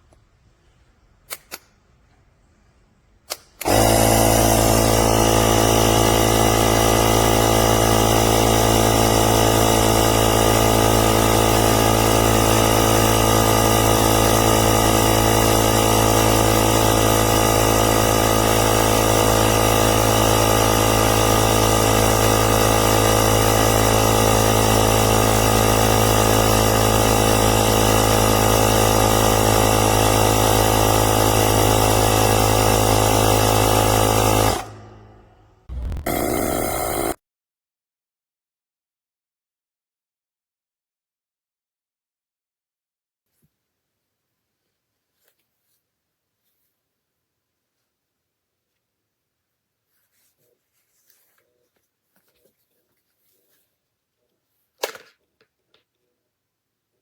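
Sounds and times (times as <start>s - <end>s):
tyre inflator compressor running: 3.6s - 37.2s.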